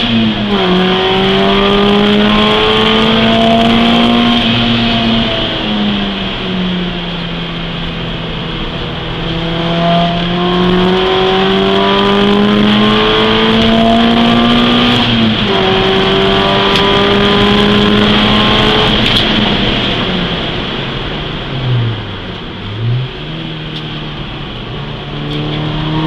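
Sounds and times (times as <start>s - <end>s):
car engine accelerating: 0.0s - 26.0s
wind and road noise hiss: 14.5s - 26.0s.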